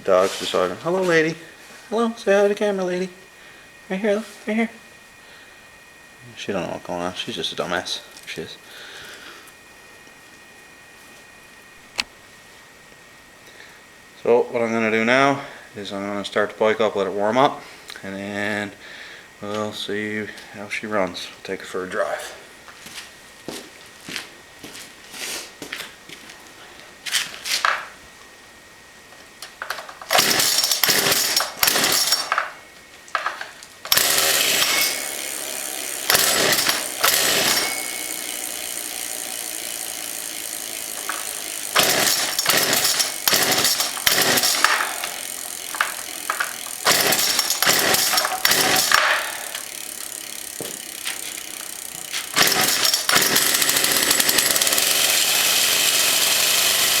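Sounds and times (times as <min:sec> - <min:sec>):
two-stroke engine starting and revving: 0:29.7 - 0:32.6, 0:33.8 - 0:57.0.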